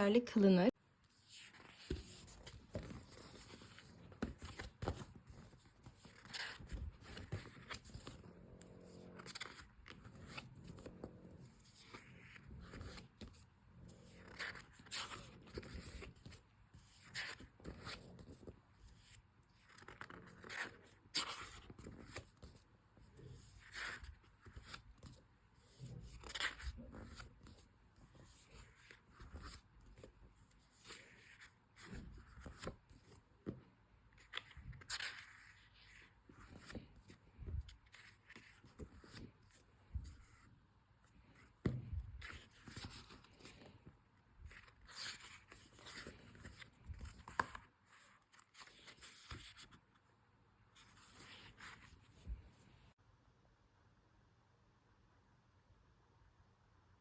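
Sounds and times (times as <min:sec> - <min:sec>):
paper rustling and crinkling: 0:01.1 - 0:13.4, 0:23.2 - 0:50.0.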